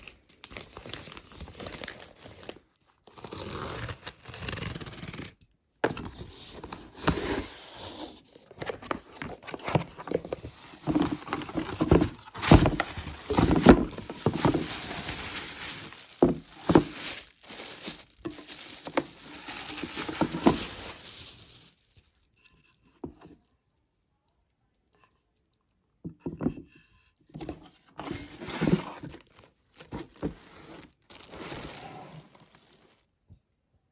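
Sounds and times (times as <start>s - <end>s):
packaging tearing and crumpling: 8.7s - 22.0s, 28.1s - 33.0s.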